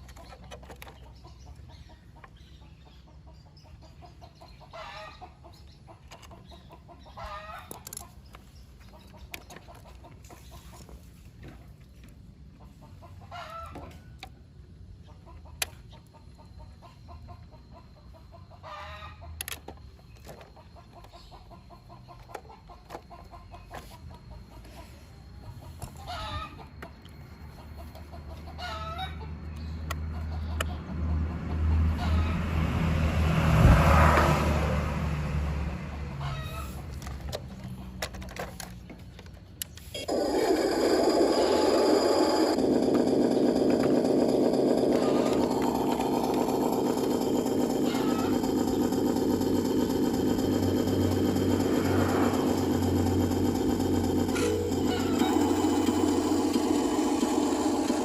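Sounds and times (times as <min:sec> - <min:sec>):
chicken clucking: 0:14.9 - 0:30.9, 0:35.9 - 0:36.9, 0:40.0 - 0:53.1, 0:54.2 - 0:56.1
low motor hum: 0:40.0 - 0:58.0.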